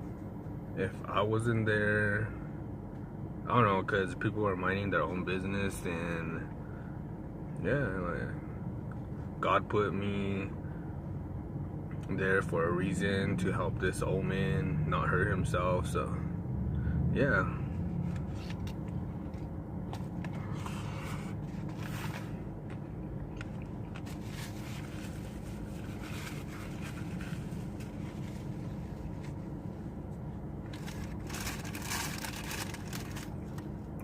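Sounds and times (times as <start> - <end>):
steady low hum: 0.0 - 34.0
chewing and crunching food: 22.7 - 24.6
paper wrapper crinkling: 23.4 - 29.4, 30.7 - 33.7.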